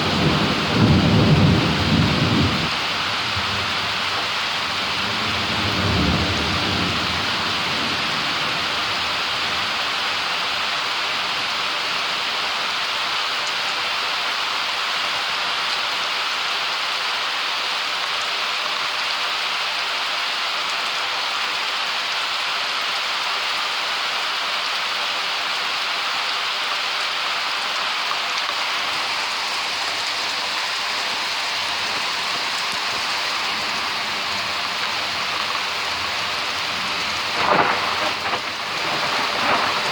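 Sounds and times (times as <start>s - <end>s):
low rumble of thunder: 0.0s - 9.8s, 32.9s - 39.9s
heavy rain: 0.0s - 39.9s.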